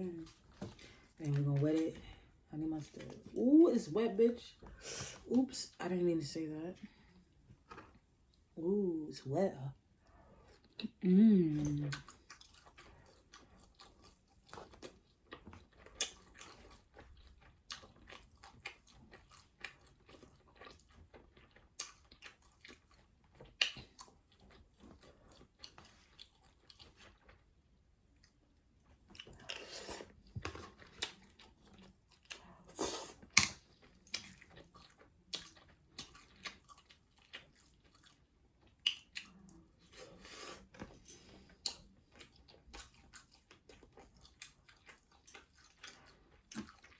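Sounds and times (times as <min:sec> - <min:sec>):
chewing and biting chicken: 0:11.6 - 0:46.9.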